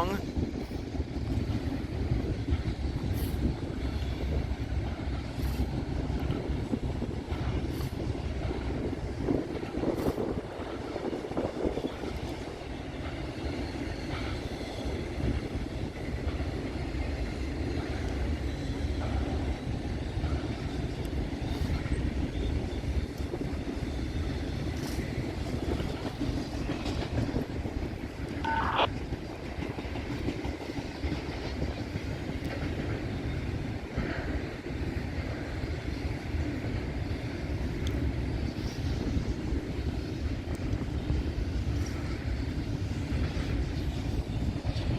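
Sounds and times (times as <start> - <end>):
freight train rumbling: 0.0 - 44.9
high wheel squeal: 28.4 - 28.9.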